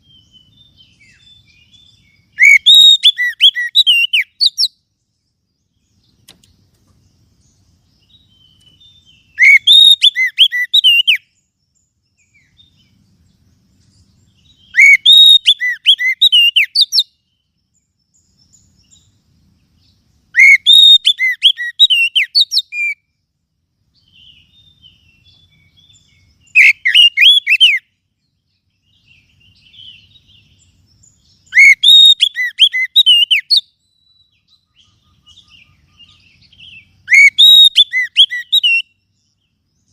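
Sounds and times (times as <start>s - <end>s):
bird whistling song: 0.0s - 23.2s, 23.9s - 39.9s
faint bird chirps: 0.0s - 39.9s.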